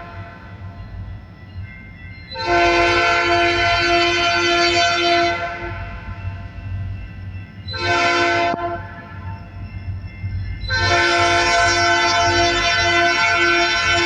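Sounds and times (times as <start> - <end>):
locomotive air horn blasts: 0.0 - 0.6, 2.4 - 6.2, 7.7 - 9.4, 10.7 - 14.0.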